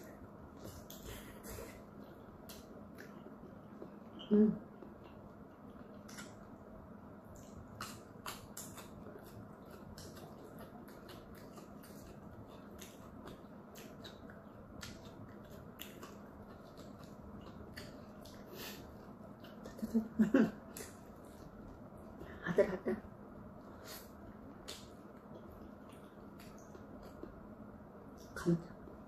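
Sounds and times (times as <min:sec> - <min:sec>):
chewing a dumpling: 0:00.0 - 0:22.4, 0:23.1 - 0:29.0
faint steady hum: 0:00.0 - 0:29.0
wet mouth clicks and smacks: 0:06.0 - 0:06.4.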